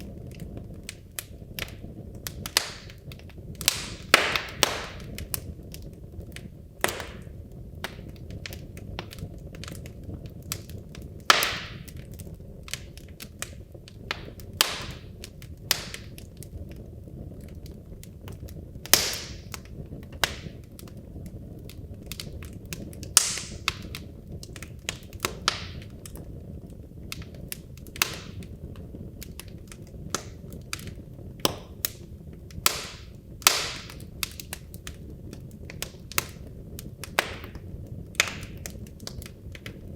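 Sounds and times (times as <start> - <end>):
fire crackles and pops: 0.0 - 39.9
fire rumbling in fireplace: 0.0 - 39.9.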